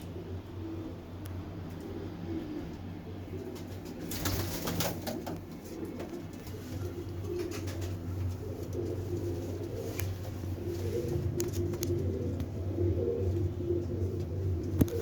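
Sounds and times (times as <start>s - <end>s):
pigeons cooing: 0.0s - 15.0s
rustling and clicking: 3.4s - 12.5s.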